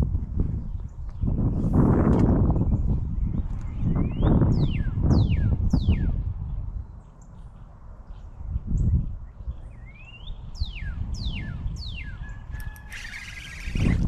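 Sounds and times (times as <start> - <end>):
songbird whistling: 3.8 - 6.2, 9.6 - 14.0.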